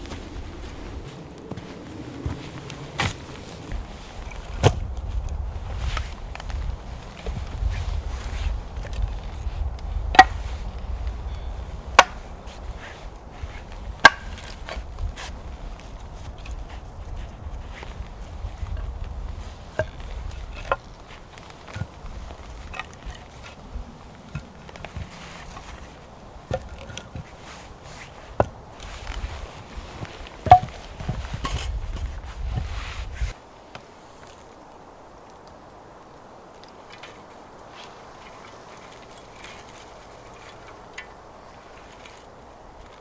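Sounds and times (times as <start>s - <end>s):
light rustling: 0.0s - 35.6s, 36.5s - 43.0s
blade chopping wood: 4.4s - 4.9s, 10.1s - 10.5s, 12.0s - 12.3s, 14.0s - 15.3s, 28.0s - 32.0s.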